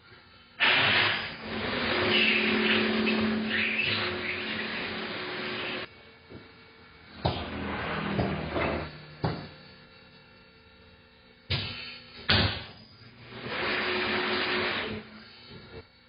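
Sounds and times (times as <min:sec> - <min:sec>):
compressed air hiss: 0:00.6 - 0:01.5, 0:11.5 - 0:12.7.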